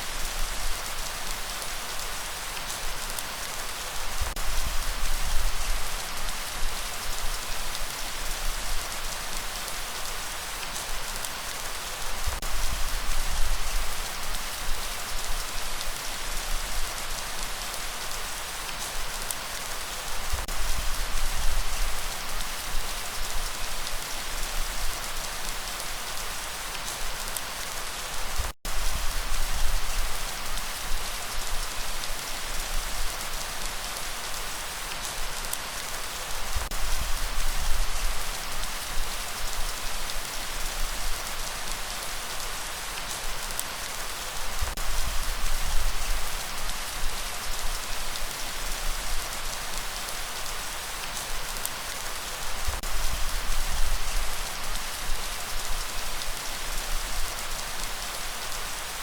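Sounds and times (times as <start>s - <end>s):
light rain falling: 0.0s - 59.0s.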